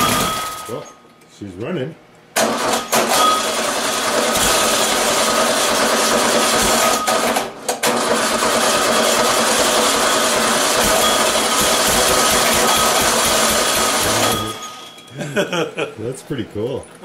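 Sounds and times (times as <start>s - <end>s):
car engine running loud: 9.2s - 14.6s.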